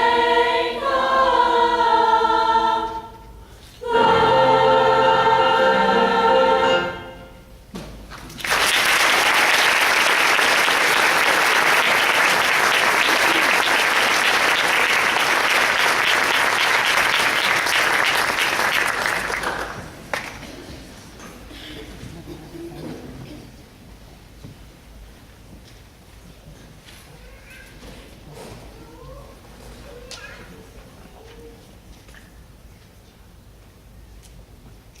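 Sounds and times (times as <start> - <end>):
women's choir holding a chord: 0.0 - 7.5
audience applauding: 8.3 - 20.4.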